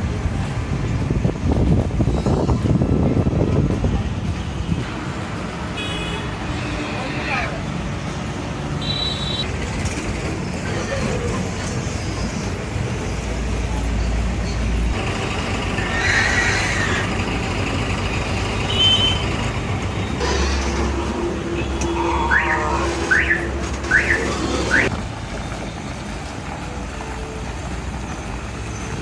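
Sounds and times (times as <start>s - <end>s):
vehicle engine: 0.0s - 29.0s
short rising squeals: 18.6s - 24.9s.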